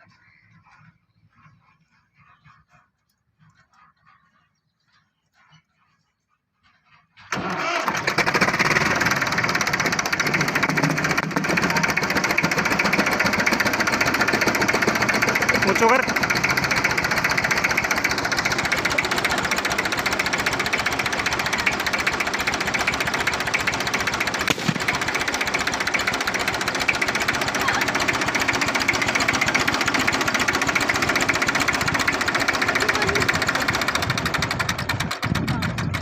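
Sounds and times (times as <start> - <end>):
tractor engine chugging: 7.3 - 36.0.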